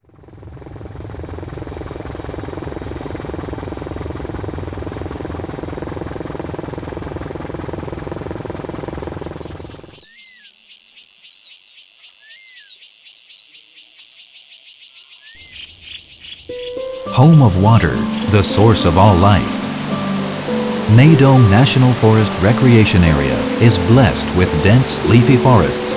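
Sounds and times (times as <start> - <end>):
insects calling: 0.9 - 25.9
short chirping calls: 15.4 - 25.9.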